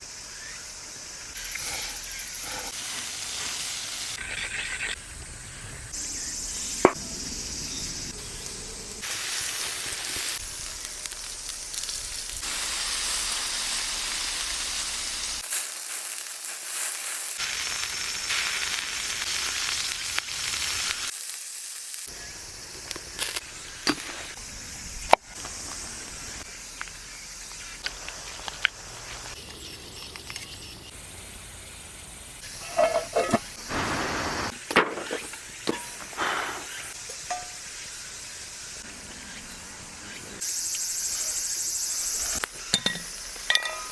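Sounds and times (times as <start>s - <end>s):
chicken sizzling over fire: 0.0s - 43.9s
fire popping: 5.9s - 27.0s, 32.4s - 37.9s.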